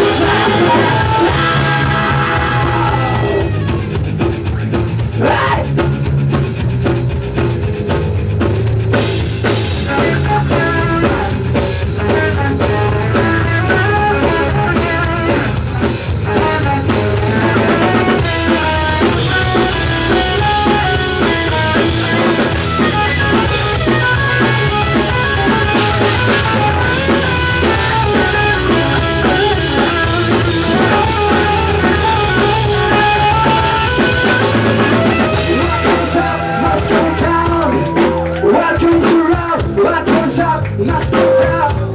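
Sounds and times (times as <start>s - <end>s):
drum kit: 0.0s - 41.9s
electric guitar: 0.0s - 41.9s.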